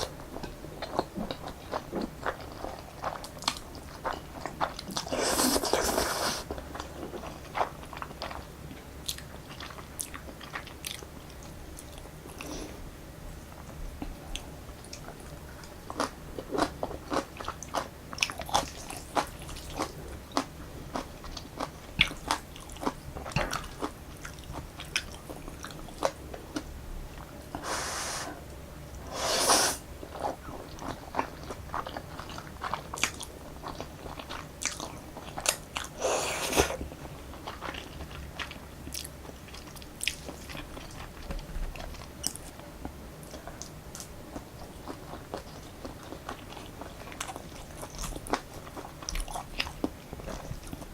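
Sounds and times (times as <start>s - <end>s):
wet chewing with mouth clicks: 0.0s - 12.8s, 13.5s - 28.2s, 29.0s - 50.9s
noodle slurps: 5.1s - 6.4s, 29.1s - 29.8s.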